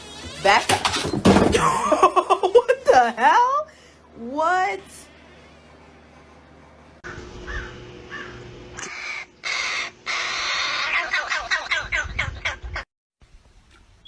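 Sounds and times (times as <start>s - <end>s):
harsh animal calls: 7.1s - 12.6s.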